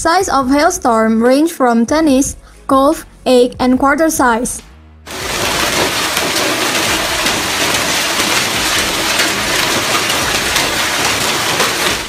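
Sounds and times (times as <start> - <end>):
hailstones hitting surfaces: 5.1 - 12.0
rain hissing: 5.1 - 12.0.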